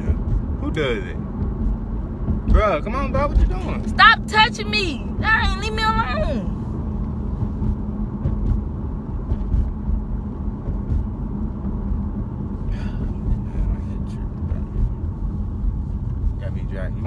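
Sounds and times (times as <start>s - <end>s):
car driving rumble: 0.0s - 17.0s.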